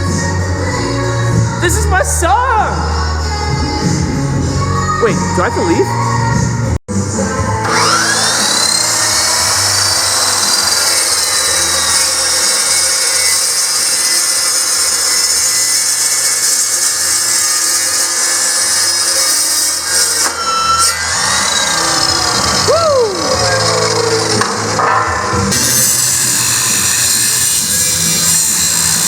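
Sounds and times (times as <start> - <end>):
power saw cutting metal: 7.2 - 29.0.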